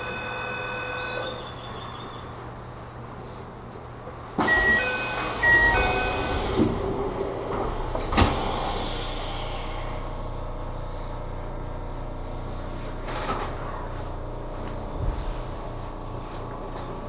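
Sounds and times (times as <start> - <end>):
two-tone train door chime: 0.0 - 2.2, 4.4 - 9.0
door mechanism hiss: 8.0 - 10.1.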